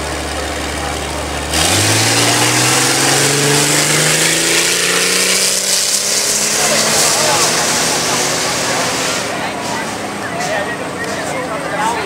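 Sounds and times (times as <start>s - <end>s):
vehicle engine accelerating hard: 0.0s - 12.0s.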